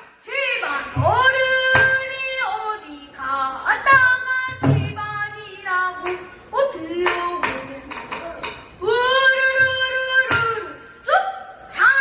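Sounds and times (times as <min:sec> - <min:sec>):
child singing unaccompanied: 0:00.2 - 0:10.8.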